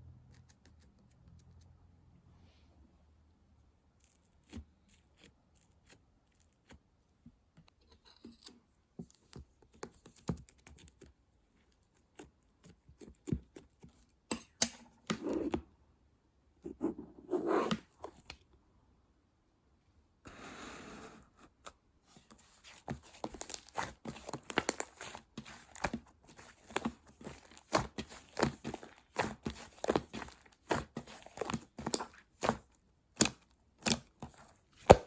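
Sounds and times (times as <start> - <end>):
slime squishing: 22.2 - 35.0.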